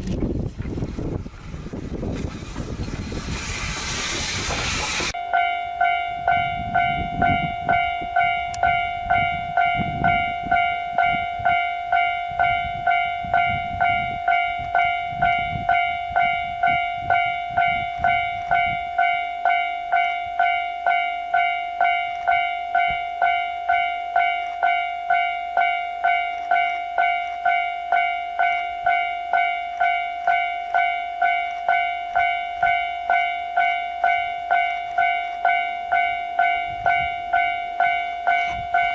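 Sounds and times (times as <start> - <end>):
low rumble: 0.0 - 5.2
railway warning bell ringing: 1.0 - 38.9.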